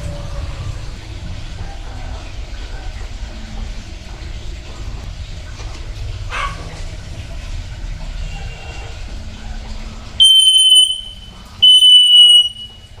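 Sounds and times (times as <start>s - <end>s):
bird whistling: 10.2s - 13.0s.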